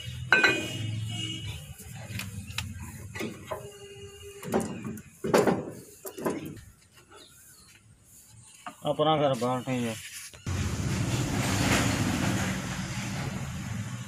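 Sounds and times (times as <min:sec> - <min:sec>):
hand tools and steel parts clattering: 0:00.2 - 0:01.0.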